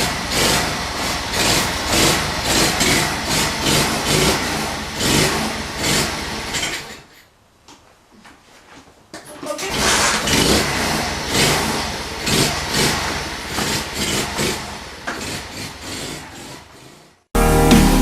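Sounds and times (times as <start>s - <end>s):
mini-bike engine revving: 0.0s - 6.9s, 9.6s - 17.2s
music: 17.4s - 18.0s.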